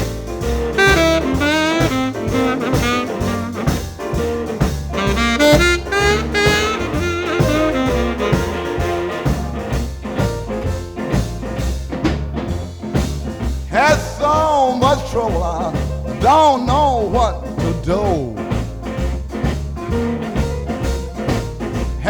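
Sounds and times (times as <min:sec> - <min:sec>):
saxophone solo: 0:00.0 - 0:10.3
bass and drums: 0:00.0 - 0:22.0.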